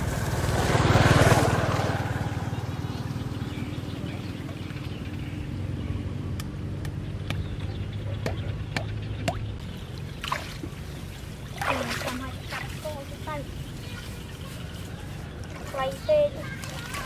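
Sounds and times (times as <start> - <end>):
water splashing: 8.2 - 14.2, 15.4 - 17.0.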